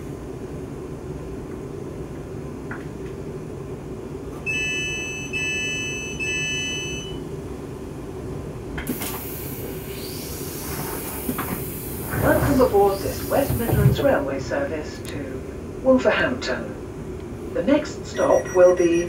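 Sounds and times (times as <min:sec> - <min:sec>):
long high warning beeps: 0:04.5 - 0:07.2, 0:18.1 - 0:19.0
train equipment humming: 0:07.2 - 0:19.0
loud hiss: 0:08.9 - 0:13.9.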